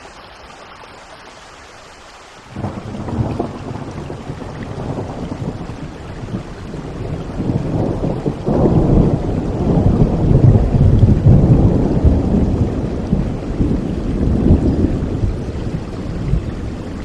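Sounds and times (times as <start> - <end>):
steady rain: 0.0 - 17.0
thunder rumbling: 2.5 - 17.0.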